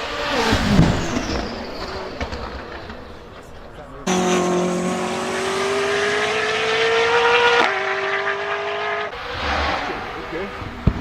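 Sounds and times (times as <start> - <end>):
car engine accelerating hard: 4.0 - 11.0.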